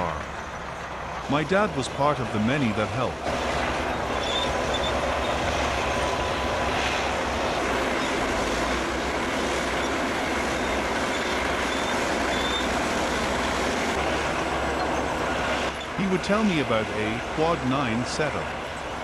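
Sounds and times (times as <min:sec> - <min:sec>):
bulldozer running: 0:00.0 - 0:19.0.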